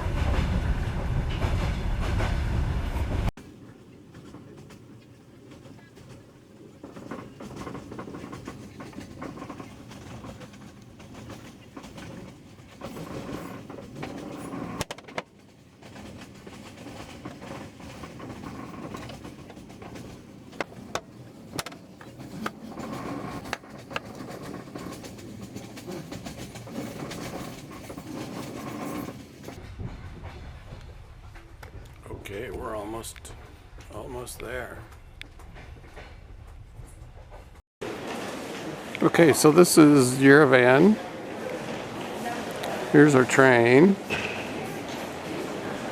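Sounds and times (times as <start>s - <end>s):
train rumbling on rails: 0.0s - 45.9s
sharp clanks from wheels: 4.1s - 32.0s, 44.0s - 45.6s.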